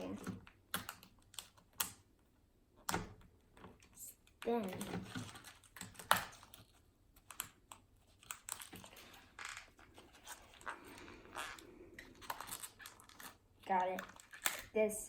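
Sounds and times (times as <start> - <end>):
plastic packaging crinkling: 8.0 - 14.8.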